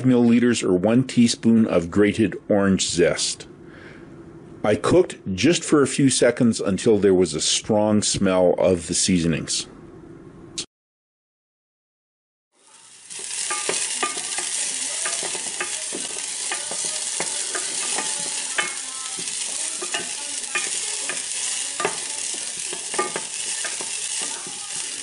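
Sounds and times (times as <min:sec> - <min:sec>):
food sizzling in hot oil: 0:12.5 - 0:25.0
utensil scraping a pan: 0:12.8 - 0:25.0.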